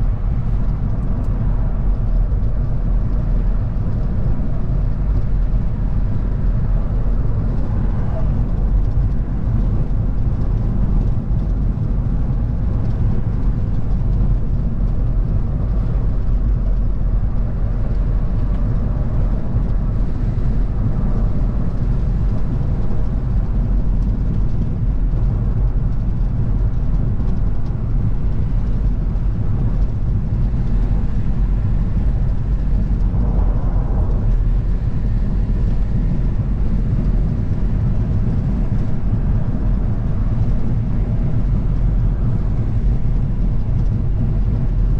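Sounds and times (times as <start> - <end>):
car engine and tyre rumble: 0.0 - 44.9.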